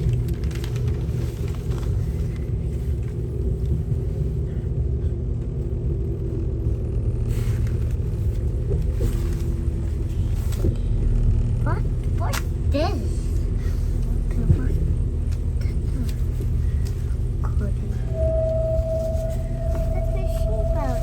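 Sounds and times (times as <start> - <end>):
train rumbling on track: 0.0 - 21.0.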